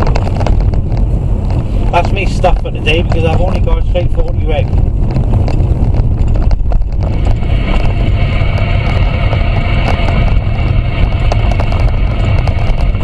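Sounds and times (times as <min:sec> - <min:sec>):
car rumble on the move: 0:00.0 - 0:13.0.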